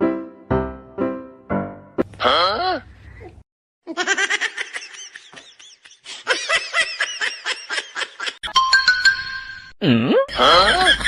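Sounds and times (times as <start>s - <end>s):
person giggling: 9.9s - 11.0s.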